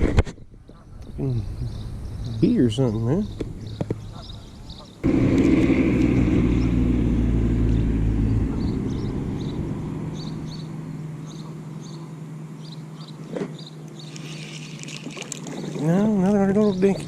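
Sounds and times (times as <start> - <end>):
low humming drone: 5.0 - 17.0.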